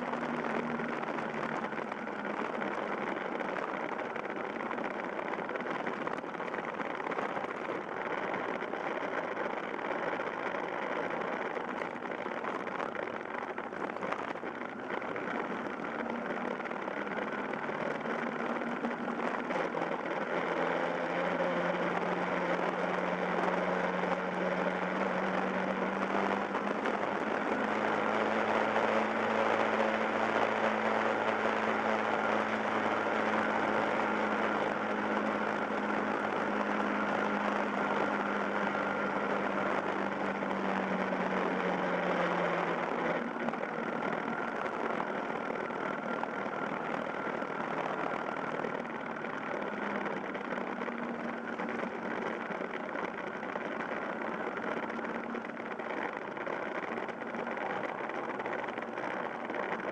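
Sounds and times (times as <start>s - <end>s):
motorcycle engine cruising: 0.0s - 59.9s
wind and road noise: 0.0s - 59.9s.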